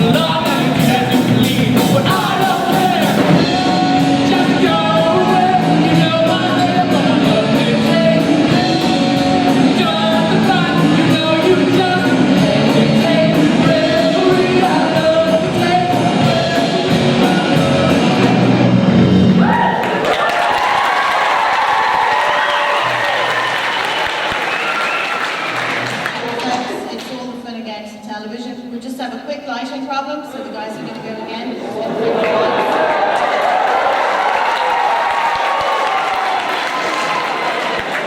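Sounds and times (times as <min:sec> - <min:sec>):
lead singer vocals: 0:00.0 - 0:19.8
rock band playing live: 0:00.0 - 0:20.0
steady drum beat: 0:00.0 - 0:20.0.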